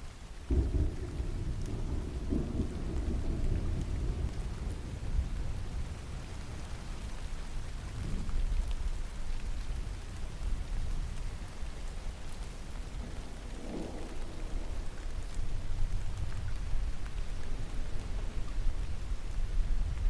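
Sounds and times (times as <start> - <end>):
steady rain falling: 0.0 - 20.0
distant thunder rumble: 0.5 - 7.0, 12.8 - 20.0.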